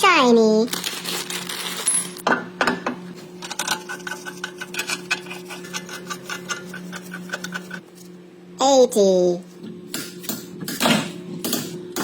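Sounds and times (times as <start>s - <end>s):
steady low hum: 1.2s - 12.0s.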